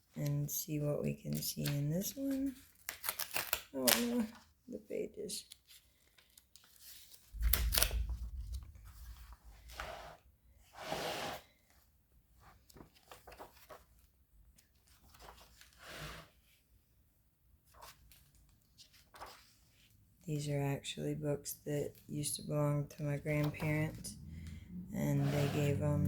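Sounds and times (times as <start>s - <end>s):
book pages rustling: 1.3s - 4.5s, 5.4s - 10.1s, 12.4s - 15.8s, 17.6s - 20.0s
low thump: 7.4s - 9.8s.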